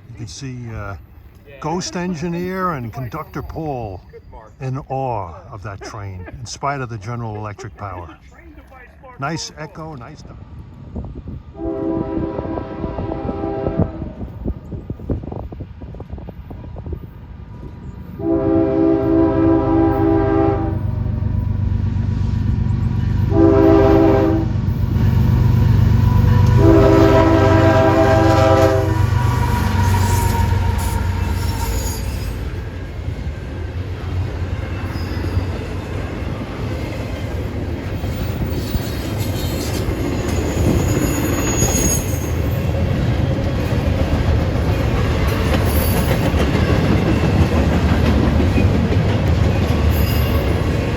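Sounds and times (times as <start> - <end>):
locomotive horn: 11.6 - 14.4, 18.2 - 21.2, 22.9 - 32.5
locomotive engine rumble: 17.2 - 50.9
train wheel clatter: 24.6 - 50.9
train wheel squeal: 24.7 - 27.1, 28.3 - 32.8, 34.6 - 36.1, 37.9 - 43.0, 44.7 - 48.8, 49.5 - 50.9.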